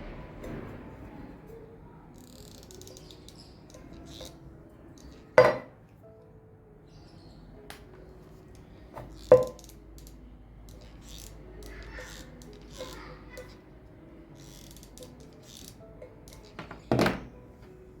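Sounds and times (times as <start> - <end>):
hard objects knocking with ringing: 5.4 - 5.8, 9.0 - 9.7.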